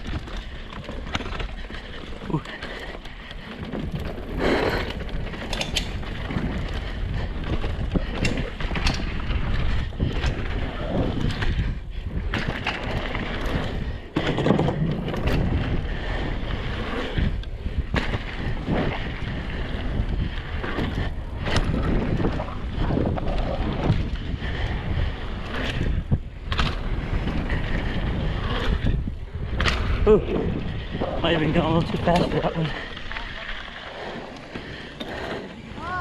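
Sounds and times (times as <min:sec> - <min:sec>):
bike chain and frame clattering: 0:00.0 - 0:11.5
tyres on dirt: 0:00.0 - 0:36.0
wind rushing over microphone: 0:03.4 - 0:36.0.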